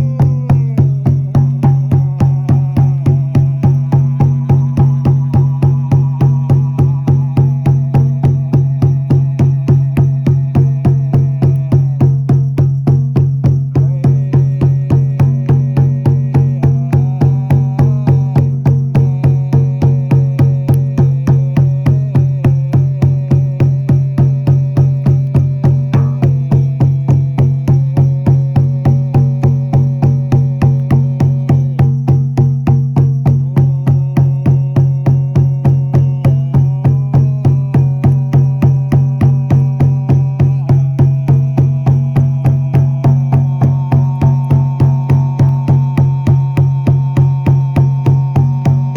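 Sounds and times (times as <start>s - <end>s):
low drone: 0.0s - 12.0s, 25.8s - 27.1s, 33.7s - 48.9s
frame drum beaten fast: 0.0s - 48.9s.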